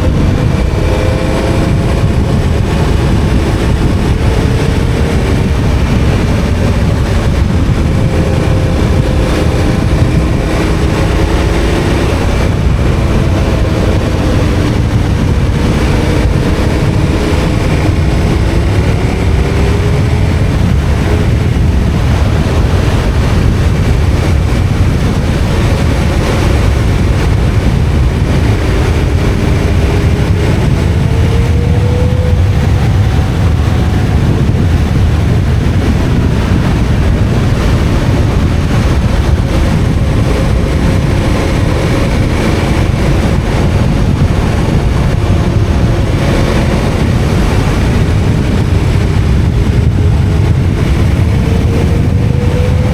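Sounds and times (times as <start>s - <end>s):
motorcycle engine running: 0.0s - 52.9s
wind and road noise: 0.0s - 52.9s.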